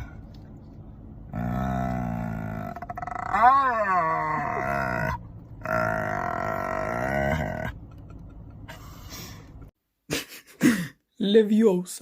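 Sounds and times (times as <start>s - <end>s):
animal drawn-out calls: 1.3s - 7.8s.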